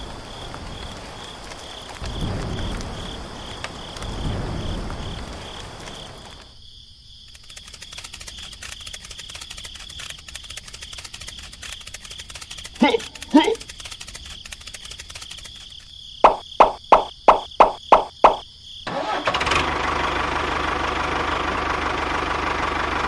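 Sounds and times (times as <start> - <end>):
raindrops pattering: 0.0 - 6.6, 7.3 - 18.4
thunder rumbling: 0.0 - 6.6
crickets chirping: 0.0 - 19.3.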